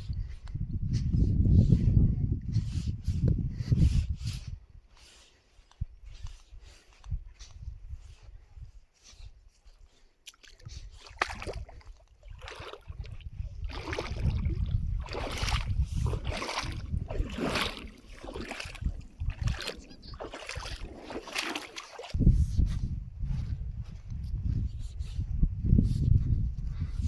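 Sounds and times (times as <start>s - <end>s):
wind rumbling on microphone: 0.0s - 10.0s, 10.6s - 27.0s
splashing through shallow water: 10.2s - 22.2s.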